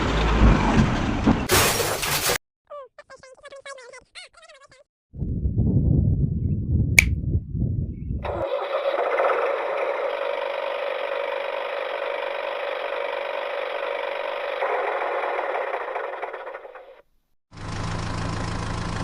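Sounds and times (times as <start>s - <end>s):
tractor engine running: 8.2s - 19.0s.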